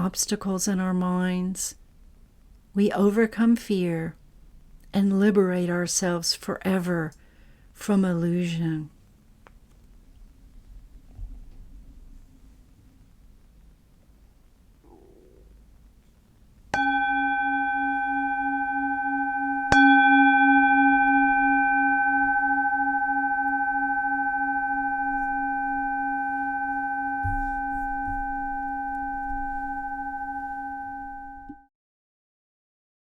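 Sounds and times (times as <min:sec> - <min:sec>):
singing bowl ringing: 0:16.8 - 0:31.7.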